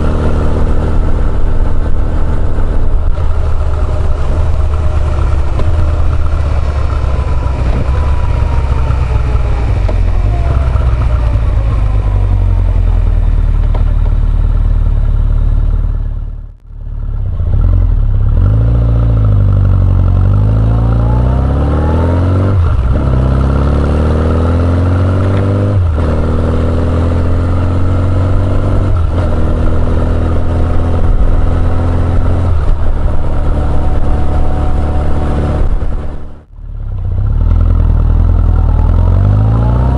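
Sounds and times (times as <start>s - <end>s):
motorcycle engine upshifting: 0.0s - 16.2s.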